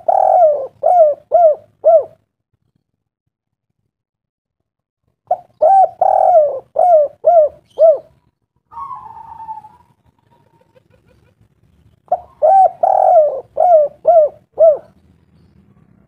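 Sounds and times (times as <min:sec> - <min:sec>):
bird cooing: 0:00.0 - 0:02.2, 0:05.3 - 0:11.4, 0:12.1 - 0:15.0.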